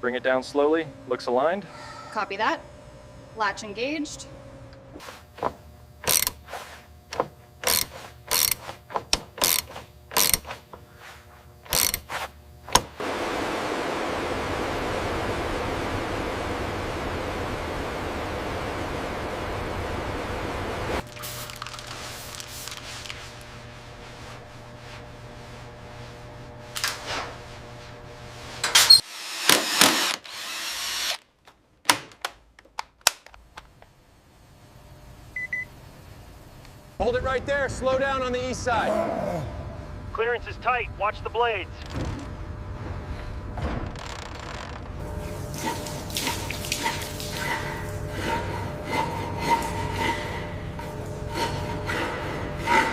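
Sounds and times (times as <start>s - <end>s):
mechanical tool bursts: 6.0s - 6.4s, 7.6s - 8.6s, 9.4s - 10.6s, 11.7s - 12.1s, 28.8s - 31.2s
mechanism clanking and ratcheting: 6.0s - 6.4s, 7.6s - 10.6s, 11.6s - 12.1s.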